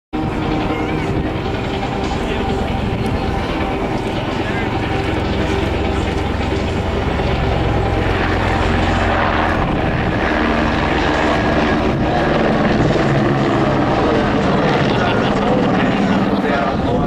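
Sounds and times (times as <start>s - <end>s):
helicopters flying: 0.2s - 17.0s.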